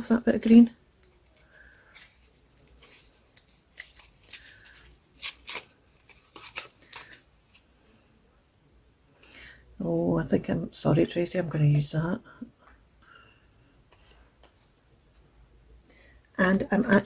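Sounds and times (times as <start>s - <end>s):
paper rustling: 0.3s - 8.0s.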